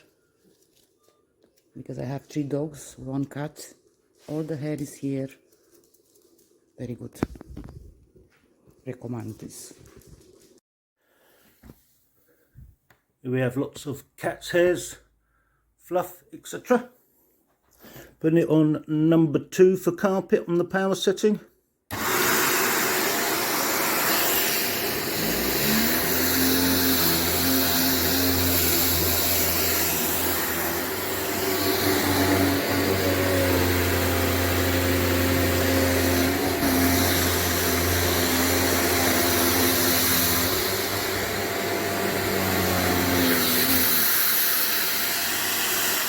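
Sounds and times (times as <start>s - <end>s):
vacuum cleaner running on carpet: 21.9s - 46.0s.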